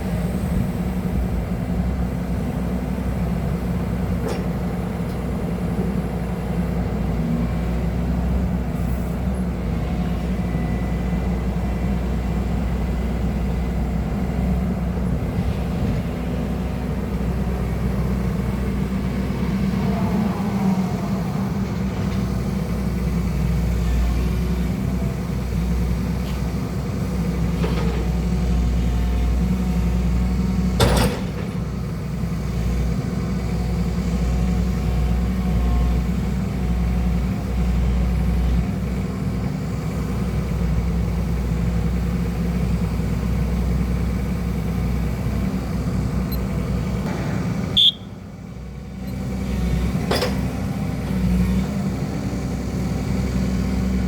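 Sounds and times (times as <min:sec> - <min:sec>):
excavator diesel engine running: 0:00.0 - 0:54.0
sharp knocks: 0:47.0 - 0:49.1.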